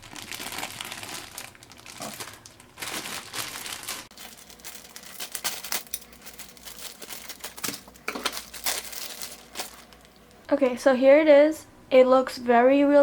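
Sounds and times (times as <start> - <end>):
plastic tearing: 0.0 - 10.1
plastic packaging crinkling: 0.0 - 10.4.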